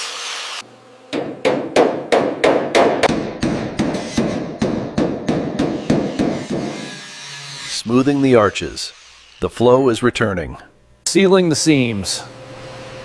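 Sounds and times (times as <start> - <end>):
hammer striking sheet metal: 1.1 - 6.9.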